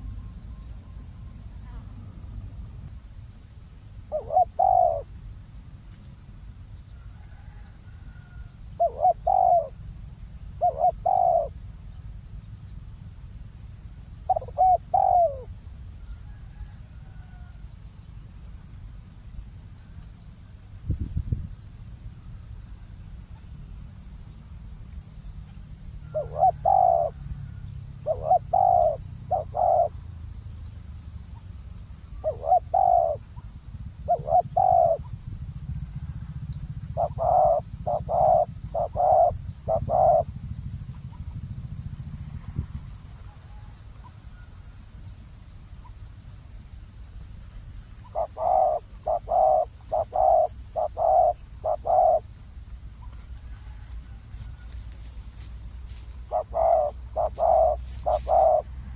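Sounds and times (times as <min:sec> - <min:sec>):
small birds chirping: 0:03.9 - 0:07.1, 0:08.7 - 0:15.6, 0:17.9 - 0:35.8, 0:36.5 - 0:53.4, 0:54.6 - 0:58.7
dove cooing: 0:04.0 - 0:05.2, 0:07.0 - 0:11.7, 0:14.2 - 0:17.6, 0:25.5 - 0:30.2, 0:32.0 - 0:41.5, 0:48.0 - 0:58.9.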